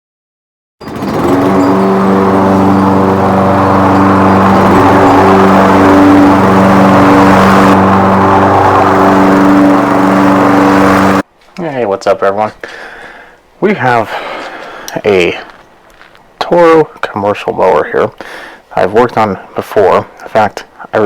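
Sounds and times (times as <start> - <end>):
lawn mower running: 0.8 - 11.2.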